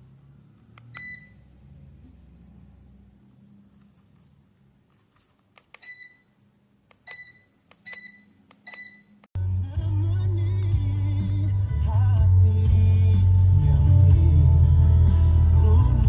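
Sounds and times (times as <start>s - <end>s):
fan receiver short beeps: 0.9s - 1.4s, 5.8s - 6.4s, 7.1s - 9.2s
loud music: 9.4s - 16.0s.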